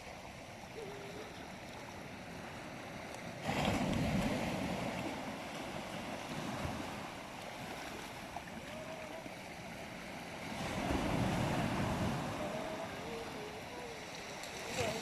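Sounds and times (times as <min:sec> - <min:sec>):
waves washing on a beach: 0:00.0 - 0:15.0
wind on microphone: 0:03.4 - 0:15.0.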